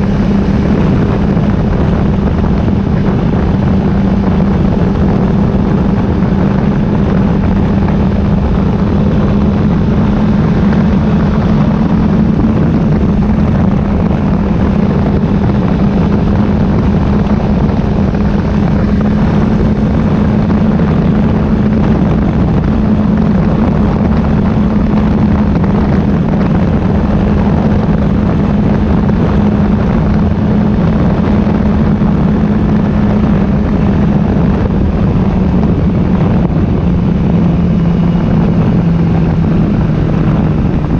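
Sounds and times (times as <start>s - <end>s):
motorcycle engine cruising: 0.0s - 40.9s
wind noise on microphone: 0.0s - 40.9s.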